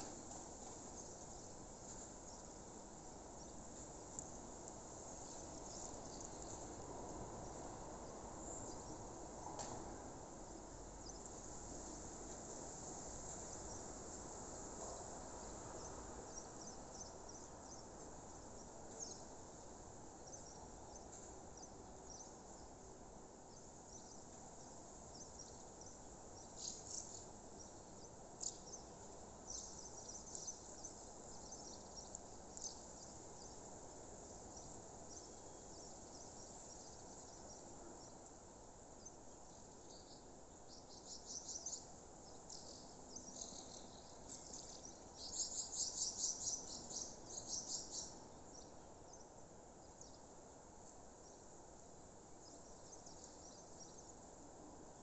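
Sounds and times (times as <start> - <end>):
crickets chirping: 39.0 - 49.2.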